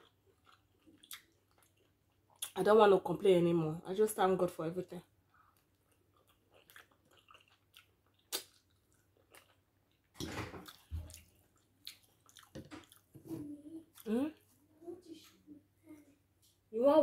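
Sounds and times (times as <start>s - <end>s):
wet chewing: 0.0s - 2.6s, 5.2s - 13.2s
mouth clicks and smacks: 6.2s - 9.5s.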